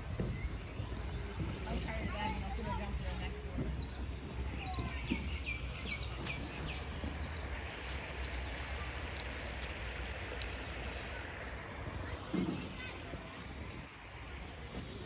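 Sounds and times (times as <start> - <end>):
birds chirping: 0.4 - 14.0
steady low rumble: 3.0 - 12.3.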